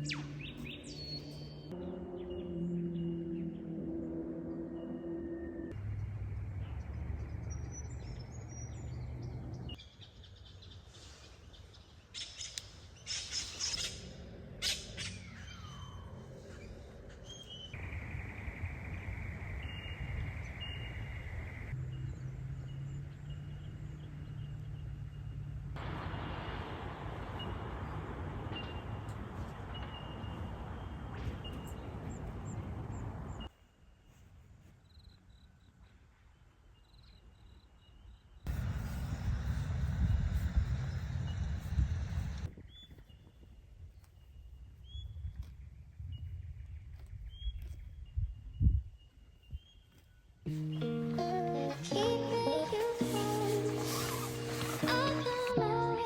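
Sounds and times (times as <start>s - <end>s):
birds chirping: 0.0s - 34.2s, 36.3s - 56.0s
steady low noise: 16.4s - 21.7s, 38.5s - 42.5s.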